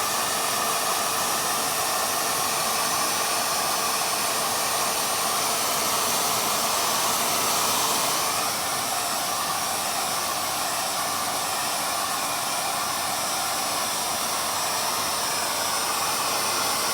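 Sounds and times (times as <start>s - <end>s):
hair dryer running: 0.0s - 16.9s.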